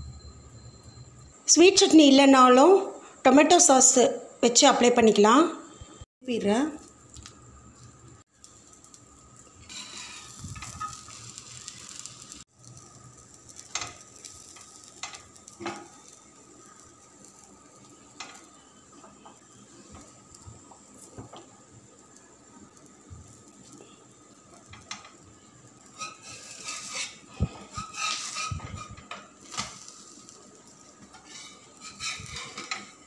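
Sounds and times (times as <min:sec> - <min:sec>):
omelette sizzling in a pan: 0:06.2 - 0:33.0
metal spatula scraping pan: 0:09.6 - 0:12.2, 0:25.9 - 0:30.0, 0:31.0 - 0:33.0.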